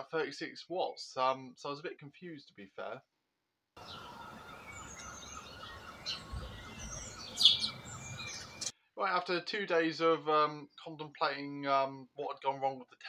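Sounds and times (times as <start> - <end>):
steady outdoor hiss: 3.8 - 8.7
songbirds chirping: 3.8 - 9.0.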